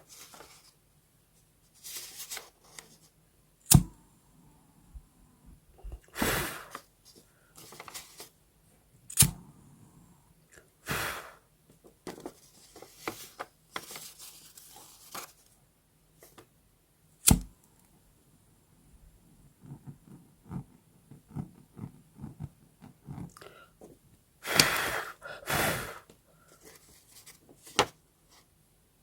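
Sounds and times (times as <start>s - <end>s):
paper rustling and tearing: 1.8s - 3.0s, 7.6s - 8.3s, 12.2s - 15.5s.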